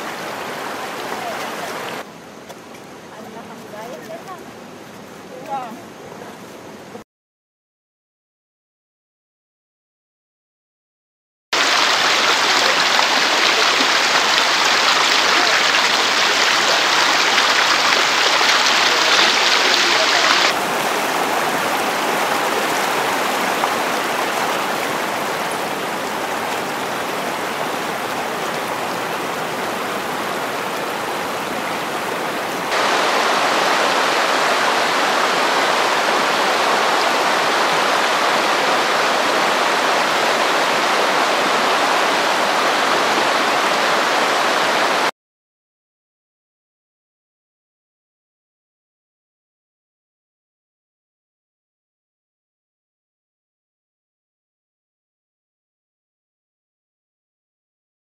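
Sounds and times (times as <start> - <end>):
rushing river water: 0.0 - 7.0, 11.6 - 45.1.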